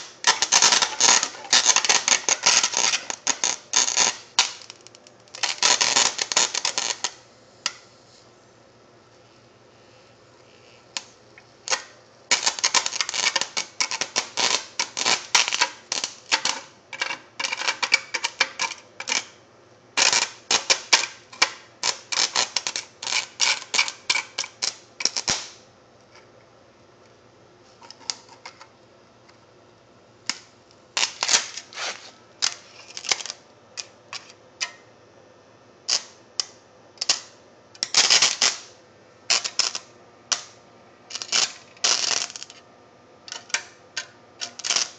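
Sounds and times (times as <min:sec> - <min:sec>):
electric arcing crackle: 0:00.0 - 0:07.8, 0:10.6 - 0:16.7, 0:20.0 - 0:25.6, 0:30.3 - 0:33.4, 0:35.9 - 0:42.6, 0:44.4 - 0:44.9.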